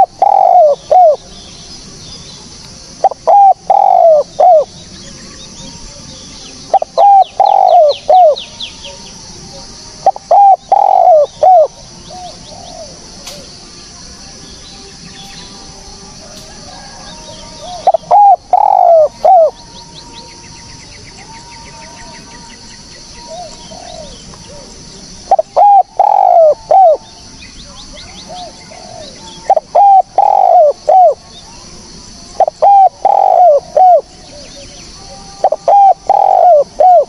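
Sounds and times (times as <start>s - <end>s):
dove cooing: 0.0s - 1.3s, 3.0s - 4.8s, 6.7s - 13.5s, 16.2s - 20.0s, 23.2s - 27.1s, 28.0s - 31.3s, 32.3s - 37.0s
steady high-pitched hiss: 0.0s - 37.0s.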